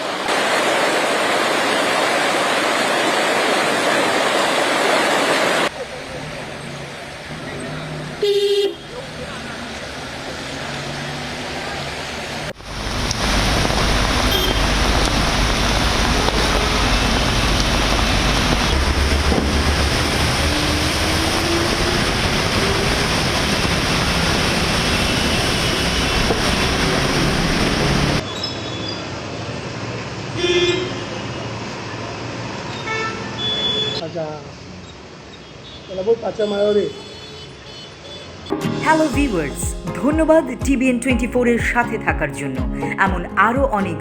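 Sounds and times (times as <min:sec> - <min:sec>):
street sound: 0:00.0 - 0:35.8, 0:37.0 - 0:44.0
road traffic noise: 0:00.0 - 0:39.5
vehicle engine rumbling: 0:05.7 - 0:28.2
short horn toot: 0:14.3 - 0:14.8.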